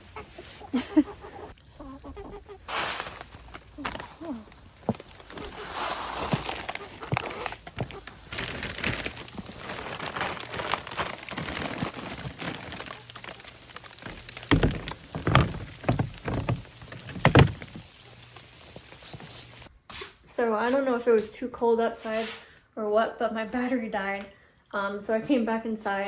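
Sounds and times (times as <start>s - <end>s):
footsteps in snow: 2.1s - 16.8s.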